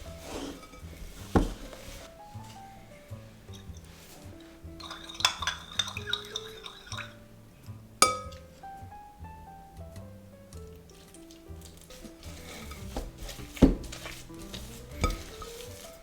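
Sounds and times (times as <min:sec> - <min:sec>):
soft background music: 0:00.0 - 0:16.0
utensils clinking on glass bowl: 0:00.1 - 0:07.2, 0:08.0 - 0:08.6, 0:11.0 - 0:16.0.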